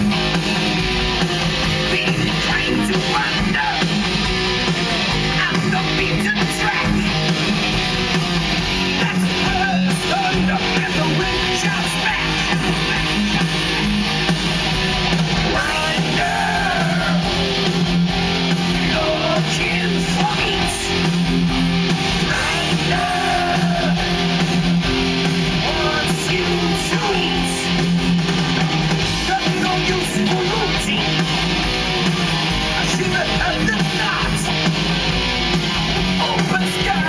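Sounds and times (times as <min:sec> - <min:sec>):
electric guitars: 0:00.0 - 0:37.0
heavy metal band playing live: 0:00.0 - 0:37.0.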